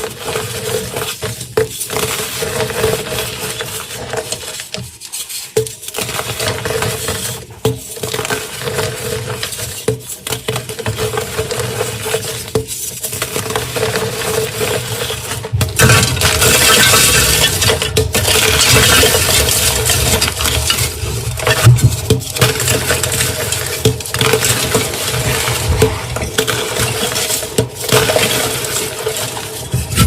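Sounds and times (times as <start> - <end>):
chalk blocks crunching: 10.5 - 30.0.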